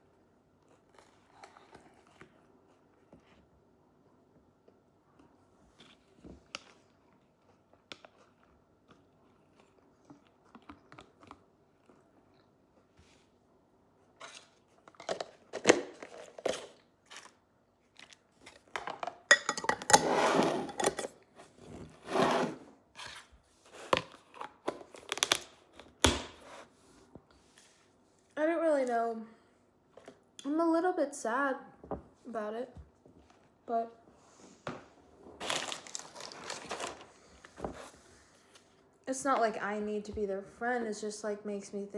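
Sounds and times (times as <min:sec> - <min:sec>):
food crinkling and crunching: 0:05.4 - 0:13.2, 0:14.1 - 0:20.0, 0:23.0 - 0:26.0, 0:35.2 - 0:38.9.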